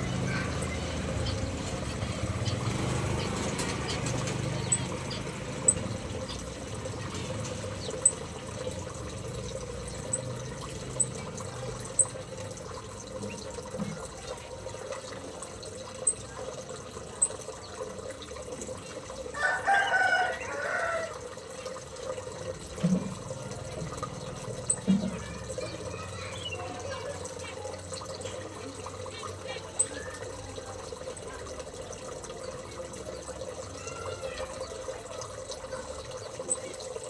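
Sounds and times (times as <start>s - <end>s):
birds chirping: 0.0s - 15.2s, 22.9s - 31.6s
rooster crowing: 19.4s - 21.3s.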